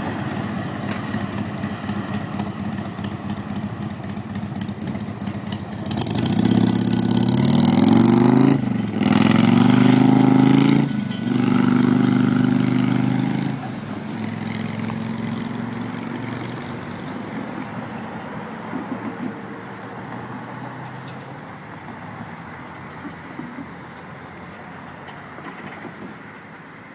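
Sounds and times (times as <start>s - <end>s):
passing train rumble: 0.0s - 26.9s.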